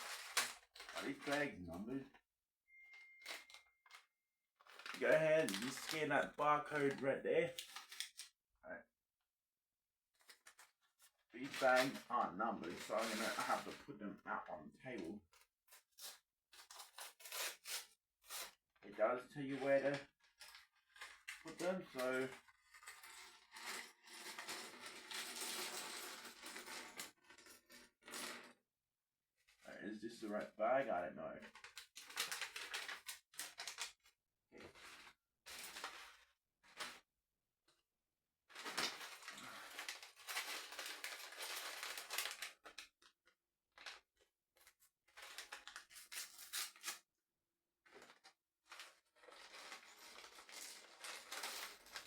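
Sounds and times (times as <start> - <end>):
plastic bricks rattling in bags: 0.0 - 1.6, 4.6 - 8.2, 11.4 - 13.8, 38.5 - 42.8, 48.0 - 52.0.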